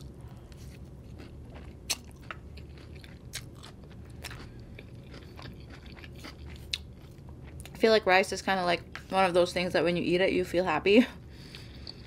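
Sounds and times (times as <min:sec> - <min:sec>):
person chewing noodles: 0:00.0 - 0:07.7.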